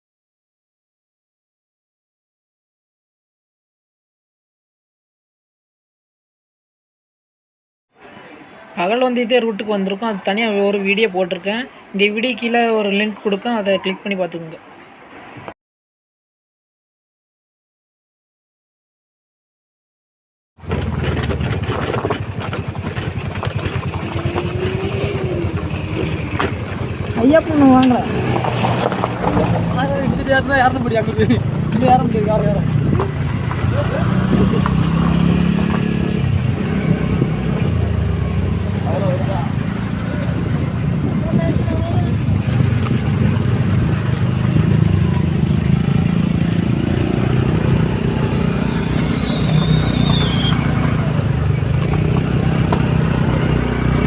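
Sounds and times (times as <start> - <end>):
scooter engine running: 20.6 - 54.0
wind rumble on microphone: 31.1 - 49.9.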